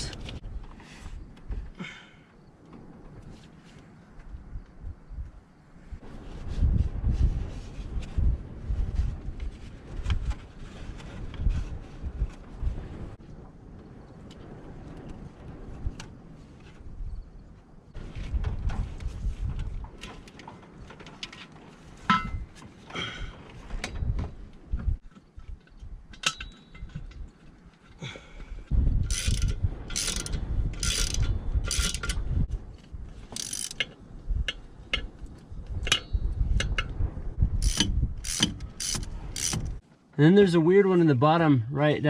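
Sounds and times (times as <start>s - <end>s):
clunks and knocks of tools: 19.8s - 23.0s
hand ratchet clicking: 29.1s - 32.2s, 33.4s - 33.9s, 37.6s - 39.8s.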